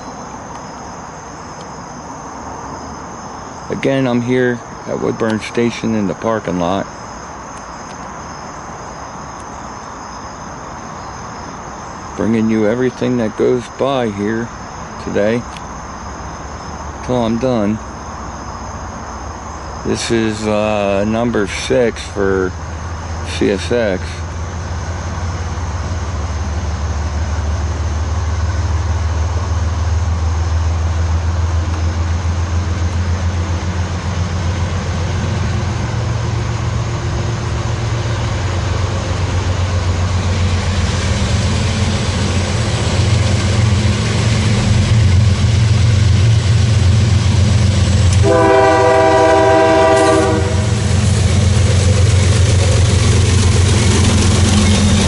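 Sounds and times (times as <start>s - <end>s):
diesel locomotive engine rumble: 0.0s - 55.0s
locomotive horn blast: 47.8s - 52.0s.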